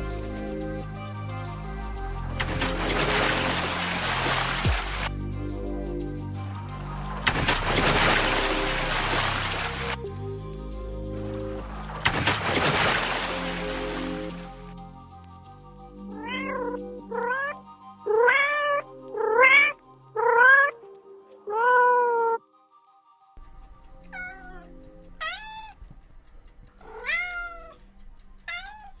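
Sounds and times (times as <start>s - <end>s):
soft background music: 0.0s - 29.0s
cat meowing: 16.2s - 20.8s, 21.5s - 22.4s, 24.1s - 25.8s, 26.8s - 27.8s, 28.4s - 29.0s.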